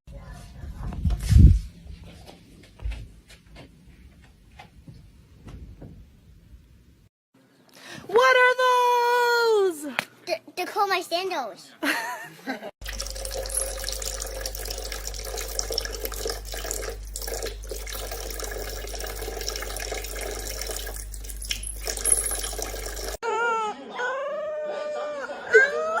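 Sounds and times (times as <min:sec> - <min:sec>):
constant low hum: 0:12.8 - 0:23.2
water running: 0:12.8 - 0:23.2.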